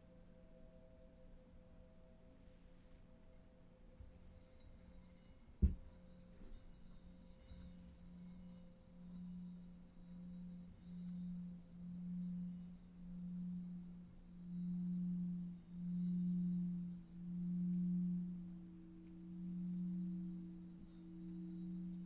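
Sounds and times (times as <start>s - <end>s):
low meditation drone: 6.0s - 22.0s.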